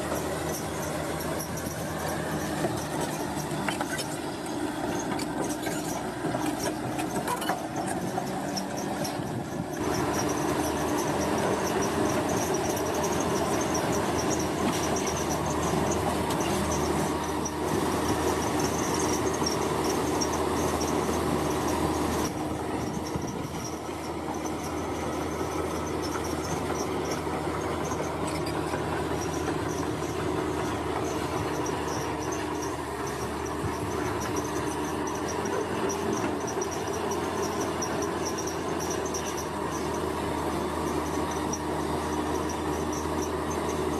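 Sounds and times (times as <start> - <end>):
heavy machinery engines rumbling: 0.0 - 43.9
insects trilling: 22.9 - 40.1.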